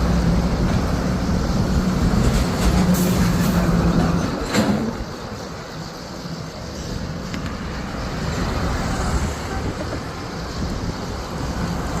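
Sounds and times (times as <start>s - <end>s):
low rumbling outdoor noise: 0.0s - 12.0s.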